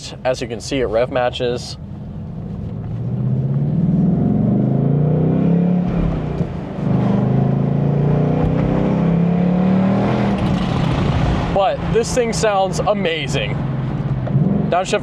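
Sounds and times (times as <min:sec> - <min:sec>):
car engine accelerating: 0:01.8 - 0:15.0.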